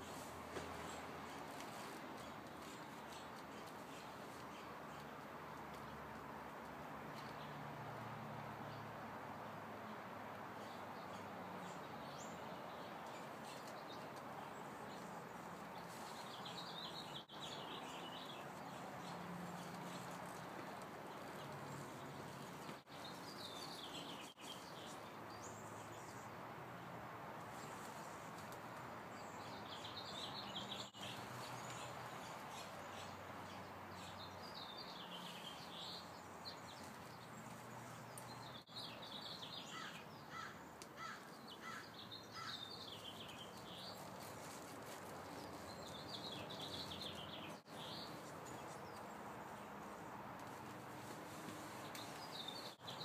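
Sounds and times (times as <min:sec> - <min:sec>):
outdoor background noise: 0:00.0 - 0:53.0
songbirds warbling: 0:29.1 - 0:44.0.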